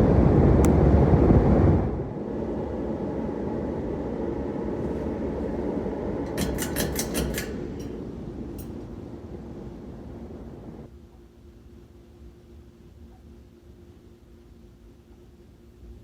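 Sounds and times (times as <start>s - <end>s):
ceiling fan whooshing: 0.0s - 16.0s
fan switch clicks: 0.6s - 1.0s, 6.2s - 9.4s.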